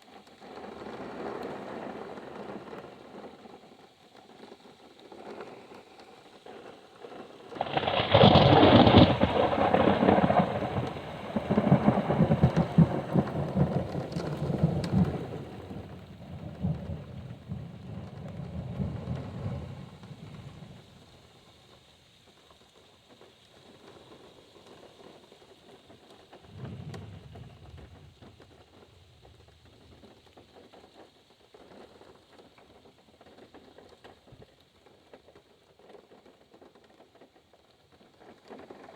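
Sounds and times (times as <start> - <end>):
rain heard from inside a car: 0.0 - 38.9
thunder clap rolling into rumble: 7.6 - 20.9, 26.4 - 30.2.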